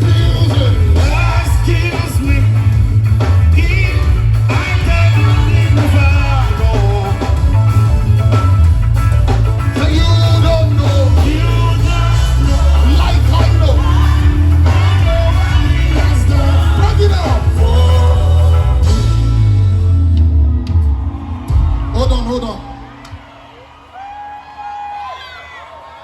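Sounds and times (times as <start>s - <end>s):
people singing: 0.0s - 7.5s, 9.9s - 19.6s
band with heavy bass line: 0.0s - 24.0s.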